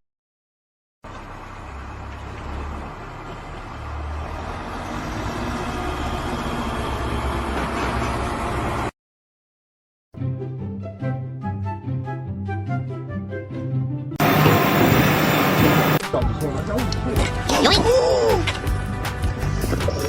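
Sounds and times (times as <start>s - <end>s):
engine running: 1.0s - 8.9s, 14.2s - 16.3s, 18.4s - 20.0s.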